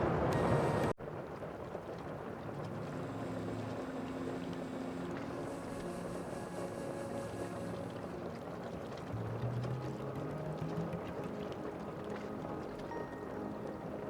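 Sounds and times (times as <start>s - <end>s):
water washing: 0.0s - 14.0s.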